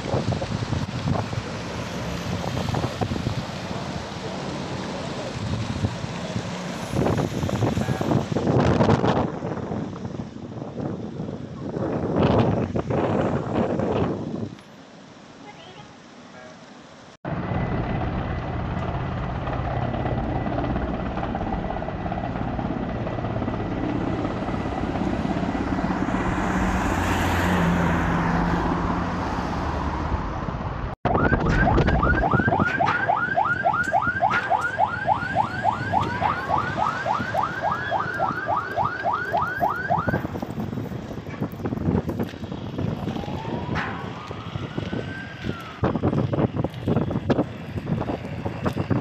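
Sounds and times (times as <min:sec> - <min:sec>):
helicopter rotor and engine: 0:00.1 - 0:12.2, 0:17.3 - 0:27.1
siren yelping: 0:31.0 - 0:40.4, 0:43.0 - 0:46.2.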